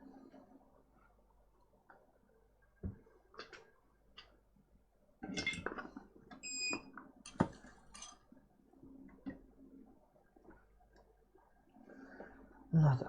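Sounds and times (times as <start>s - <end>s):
metal tools clinking on workbench: 7.3s - 8.2s.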